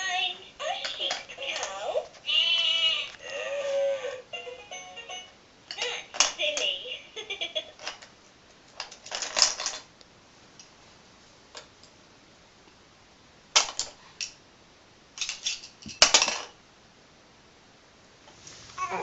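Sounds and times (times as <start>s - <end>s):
plastic pieces clacking and rattling: 8.8s - 9.9s, 13.6s - 14.0s, 15.2s - 16.6s.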